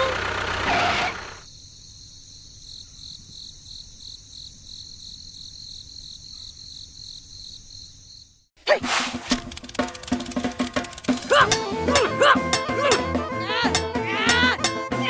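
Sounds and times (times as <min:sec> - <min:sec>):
crickets trilling: 0:01.4 - 0:08.6.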